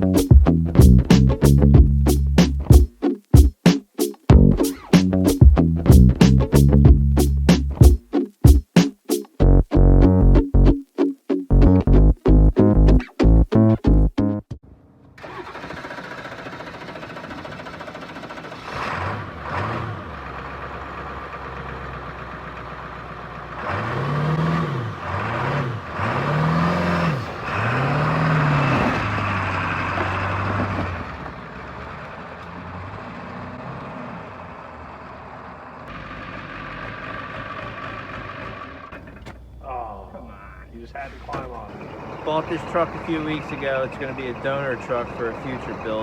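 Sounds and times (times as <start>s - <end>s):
pickup engine idling and revving: 15.2s - 39.6s, 41.7s - 46.0s.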